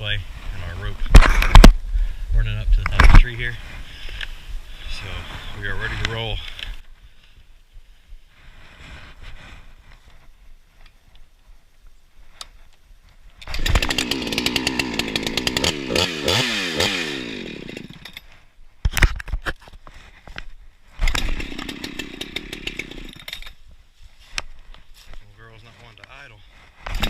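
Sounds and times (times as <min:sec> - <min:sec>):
chainsaw revving: 0:13.4 - 0:18.2, 0:21.0 - 0:23.4.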